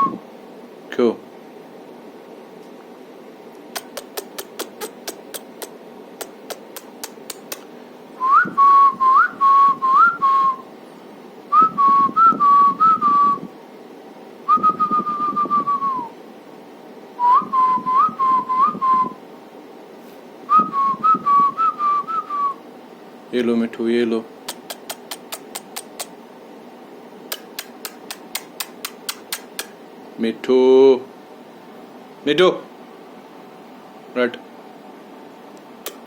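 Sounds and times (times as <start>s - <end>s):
sharp clicks: 3.7s - 7.7s, 24.5s - 26.1s, 27.3s - 29.8s
whistling: 8.2s - 10.6s, 11.5s - 13.5s, 14.5s - 16.1s, 17.2s - 19.2s, 20.5s - 22.6s.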